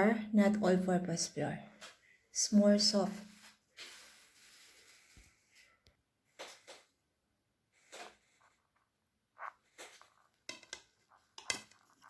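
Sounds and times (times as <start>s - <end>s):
faint handling scrapes and taps: 9.6s - 12.0s.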